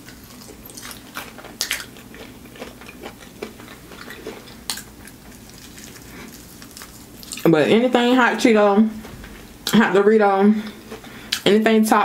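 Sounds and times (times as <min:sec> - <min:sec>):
biting and chewing: 0:00.0 - 0:07.5.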